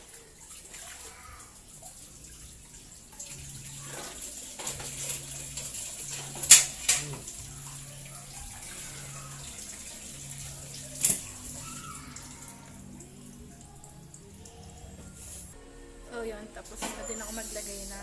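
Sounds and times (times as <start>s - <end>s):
liquid pouring: 0.0s - 15.6s.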